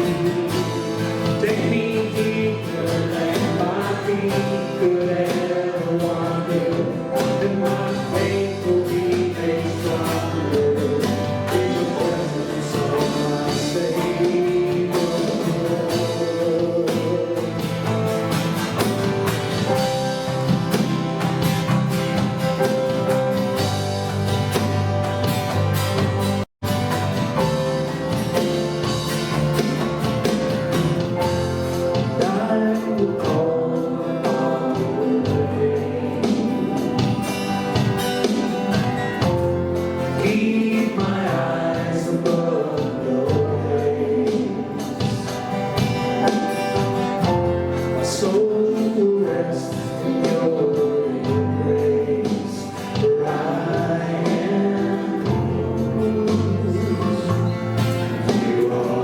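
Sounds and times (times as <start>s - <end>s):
people singing gospel song: 0.0s - 17.6s, 32.0s - 39.4s, 40.1s - 46.4s, 47.9s - 59.0s
band playing worship music: 0.0s - 59.0s.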